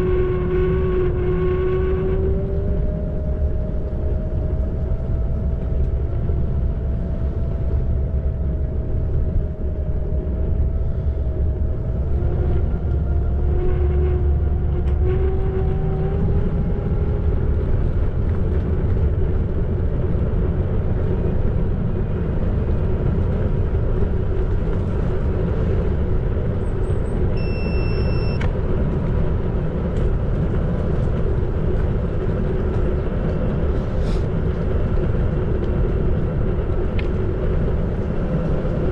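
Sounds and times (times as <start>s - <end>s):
electric scooter motor whine: 0.0s - 17.5s, 27.3s - 28.6s
wind and tyres rumbling on road: 0.0s - 38.9s
high beep: 27.4s - 28.4s.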